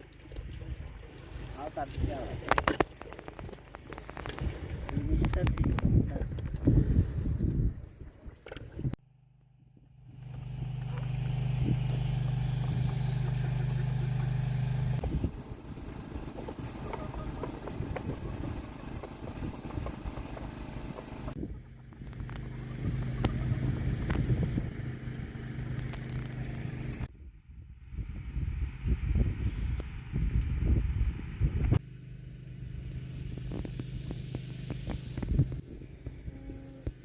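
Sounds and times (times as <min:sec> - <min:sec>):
engine humming: 0:08.8 - 0:27.1, 0:31.8 - 0:37.0.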